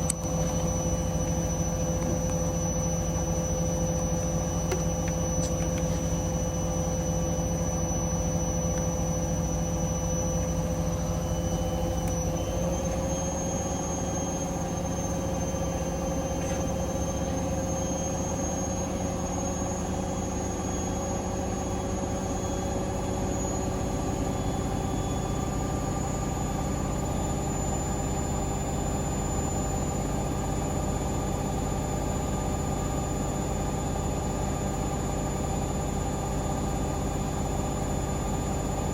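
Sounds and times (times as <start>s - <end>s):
high whine: 0.0s - 20.3s
washing machine spinning: 0.0s - 38.9s.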